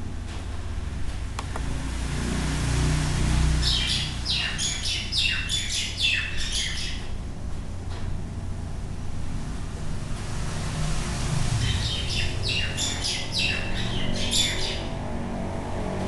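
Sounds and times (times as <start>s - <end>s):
low hum: 0.0s - 16.0s
bird chirping: 3.6s - 7.1s, 11.5s - 15.0s.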